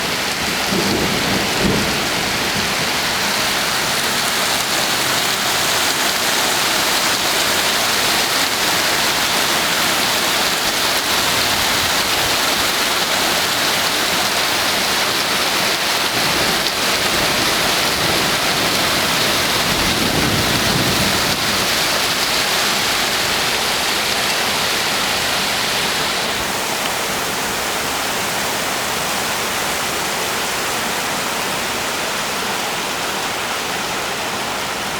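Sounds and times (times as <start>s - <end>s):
thunder rumble: 0.0s - 6.7s, 16.1s - 25.0s
heavy rain: 0.0s - 34.9s.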